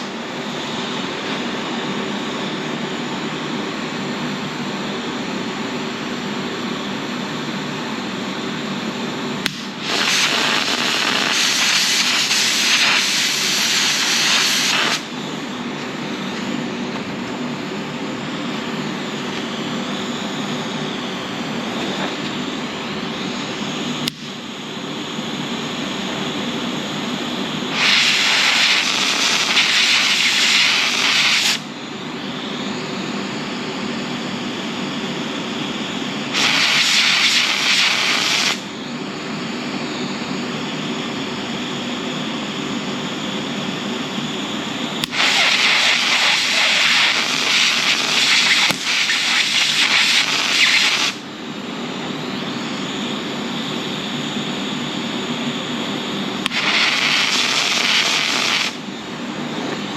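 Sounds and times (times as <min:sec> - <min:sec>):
steady welder hum: 0:00.0 - 0:59.9
welding arc crackle and sizzle: 0:09.4 - 0:17.1, 0:27.7 - 0:31.7, 0:36.3 - 0:38.7, 0:45.0 - 0:51.2, 0:56.4 - 0:58.8.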